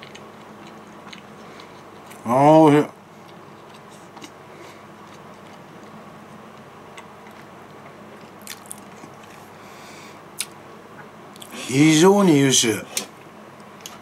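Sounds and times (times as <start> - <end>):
faint chewing: 0.0 - 2.2, 3.1 - 9.5.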